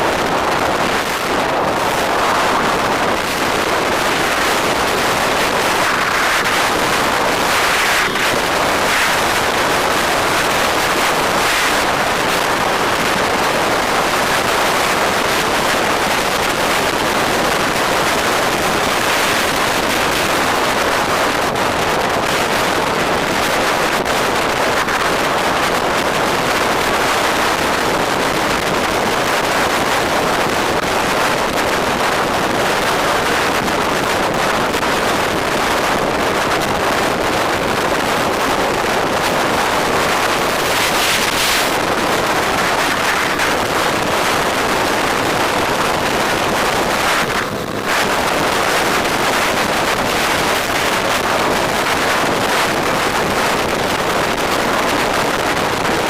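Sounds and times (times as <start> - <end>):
vehicle noise: 0.0 - 56.0
wind rushing on microphone: 0.0 - 56.0.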